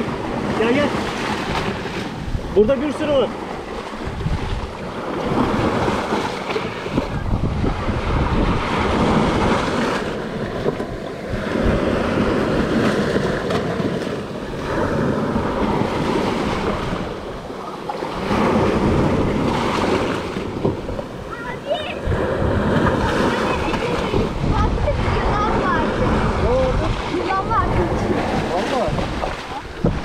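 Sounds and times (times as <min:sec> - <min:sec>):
small waves washing onto shore: 0:00.0 - 0:30.0
wind buffeting microphone: 0:00.0 - 0:30.0.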